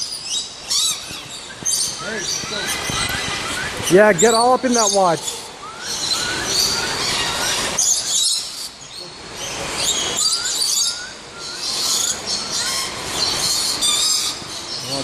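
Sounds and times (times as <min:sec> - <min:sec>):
flock of birds chirping: 0:00.0 - 0:15.0
short rising whistles: 0:01.7 - 0:04.4, 0:05.6 - 0:08.3, 0:09.9 - 0:12.0.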